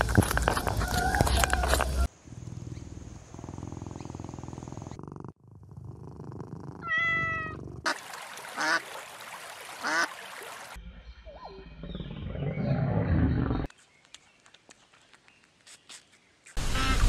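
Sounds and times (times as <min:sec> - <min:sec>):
lion growling: 0:02.0 - 0:06.9.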